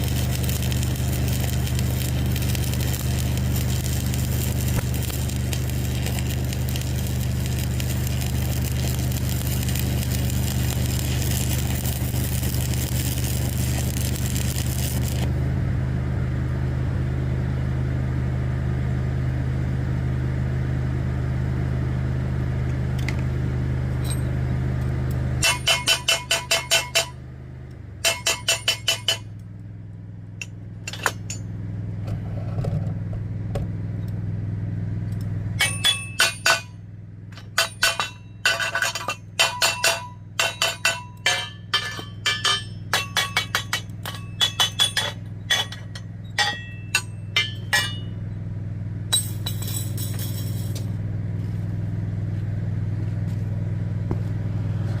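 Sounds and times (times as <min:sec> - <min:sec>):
engine running: 0:00.0 - 0:55.0
ringing metal clanks: 0:25.4 - 0:27.2, 0:28.0 - 0:29.4, 0:30.4 - 0:31.5, 0:35.6 - 0:48.3, 0:49.1 - 0:50.9.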